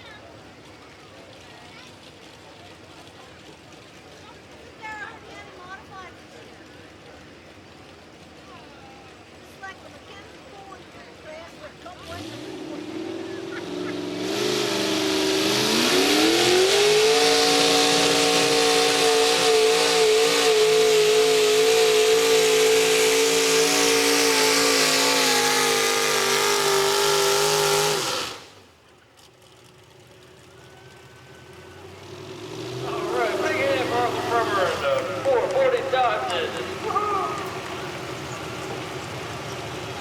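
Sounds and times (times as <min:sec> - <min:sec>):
tractor engine revving: 0:11.7 - 0:40.0.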